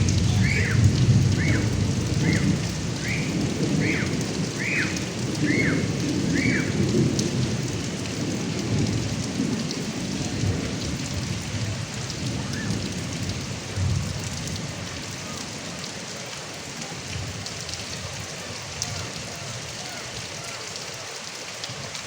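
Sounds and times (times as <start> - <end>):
low thunder rumbling: 0.0 - 15.1
rain running off gutter spout: 0.0 - 22.0.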